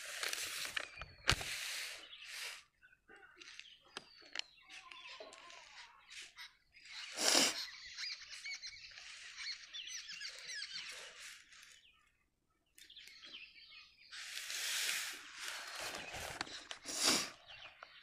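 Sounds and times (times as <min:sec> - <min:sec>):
paper rustling: 0:00.0 - 0:02.6, 0:14.3 - 0:17.1
small birds chirping: 0:00.0 - 0:18.0.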